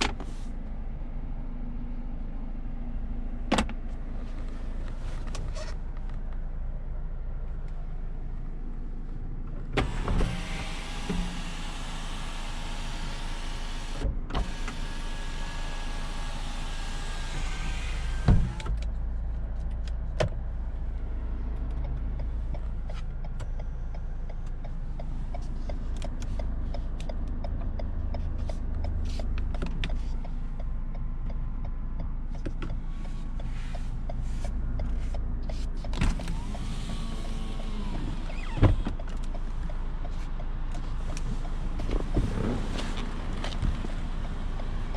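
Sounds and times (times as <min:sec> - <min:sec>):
car rumble in motion: 0:00.0 - 0:44.9
power window motor whining: 0:09.8 - 0:18.8, 0:36.0 - 0:39.0
window stopping thump: 0:18.2 - 0:18.7.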